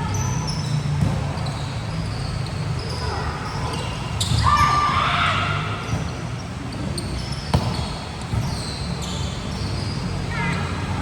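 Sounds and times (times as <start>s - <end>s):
sneakers squeaking on court floor: 0.0s - 4.8s, 5.7s - 11.0s
ball impact: 7.5s - 8.4s.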